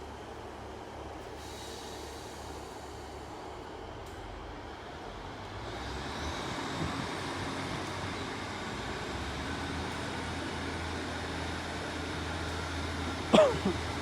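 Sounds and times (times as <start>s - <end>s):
diesel train engine: 0.0s - 14.0s.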